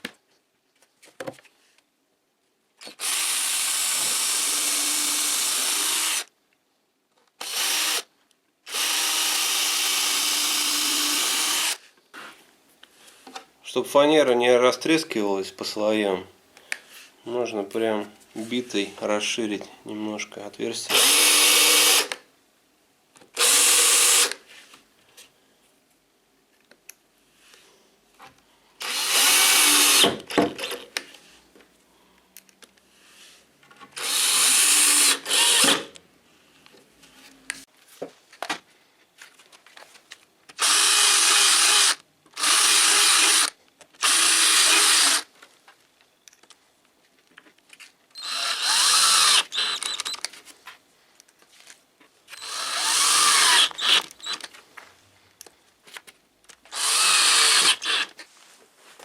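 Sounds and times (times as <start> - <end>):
electric drill-driver running: 2.8 - 6.3, 7.4 - 8.1, 8.7 - 11.8, 20.9 - 22.2, 23.4 - 24.4, 28.8 - 30.7, 34.0 - 35.9, 40.6 - 45.3, 48.2 - 50.2, 52.4 - 54.5, 56.7 - 58.1.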